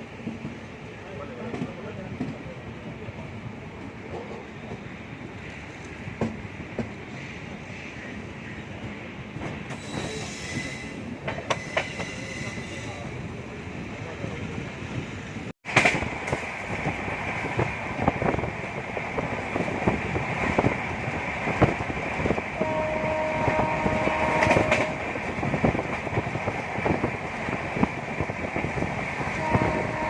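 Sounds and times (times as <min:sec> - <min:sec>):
wheels clickety-clack over rail joints: 0:00.0 - 0:30.0
train horn: 0:22.6 - 0:25.1, 0:29.3 - 0:30.0.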